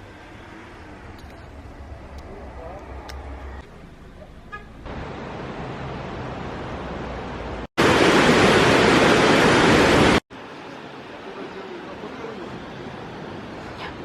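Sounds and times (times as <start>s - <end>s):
rushing water: 4.8s - 14.0s.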